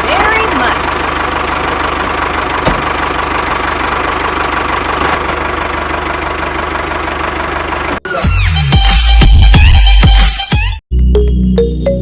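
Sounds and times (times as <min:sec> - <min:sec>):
engine idling: 0:00.0 - 0:08.2.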